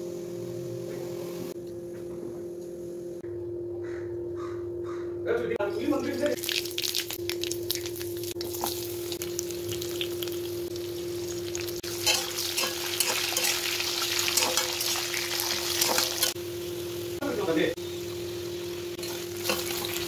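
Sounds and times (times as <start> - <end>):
steady low hum: 0.0 - 6.5, 7.1 - 20.0
seeds crackling in hot oil: 6.1 - 20.0
spatula stirring: 11.9 - 16.4.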